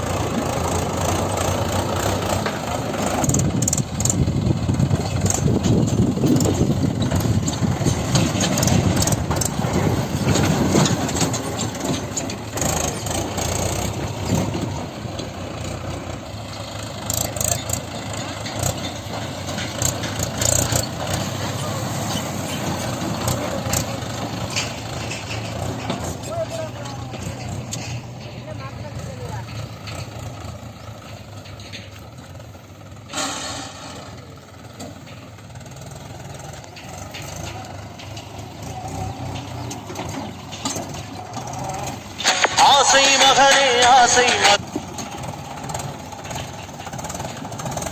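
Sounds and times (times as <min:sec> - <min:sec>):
heavy diesel engine running: 0:00.0 - 0:47.9.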